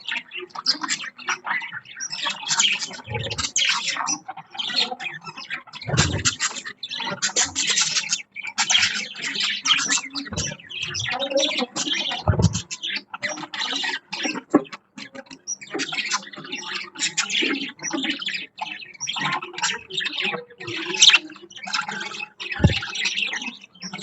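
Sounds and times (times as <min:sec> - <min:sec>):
budgerigars chirping: 0:00.0 - 0:24.0
low thumps: 0:12.3 - 0:12.6, 0:22.6 - 0:22.8.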